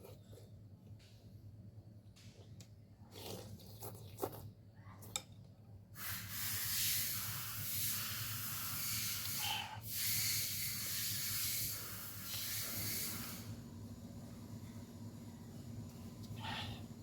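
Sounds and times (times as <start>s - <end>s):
person slurping noodle soup: 3.0s - 4.4s.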